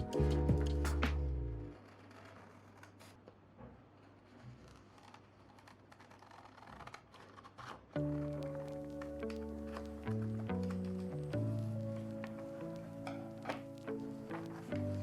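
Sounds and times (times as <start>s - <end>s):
lo-fi background music: 0.0s - 1.8s, 8.0s - 15.0s
rustling of craft materials: 0.0s - 15.0s.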